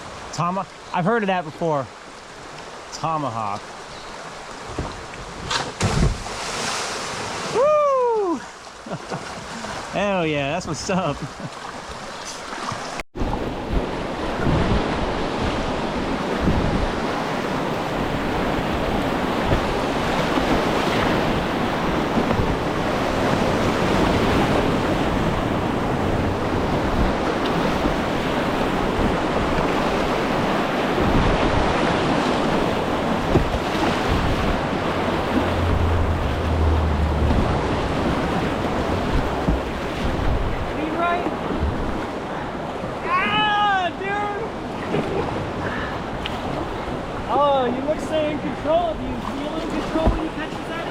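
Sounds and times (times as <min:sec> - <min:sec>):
wind buffeting microphone: 0:13.2 - 0:43.0
whitewater rapids rushing: 0:14.2 - 0:50.9.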